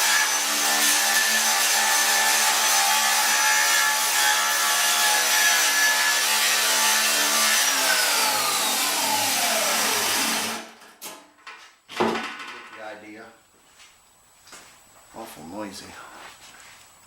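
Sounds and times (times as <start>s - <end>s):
grinder motor whine: 7.6s - 10.8s.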